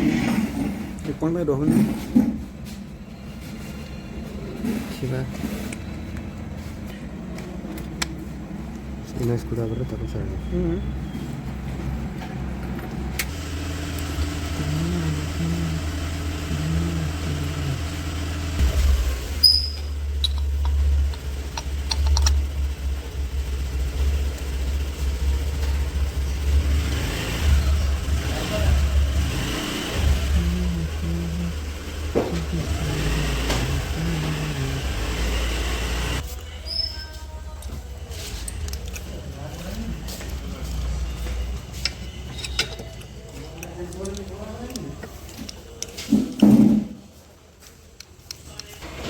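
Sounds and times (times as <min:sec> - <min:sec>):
small engine rumbling: 0:00.0 - 0:46.9
scooter engine idling: 0:13.3 - 0:36.2.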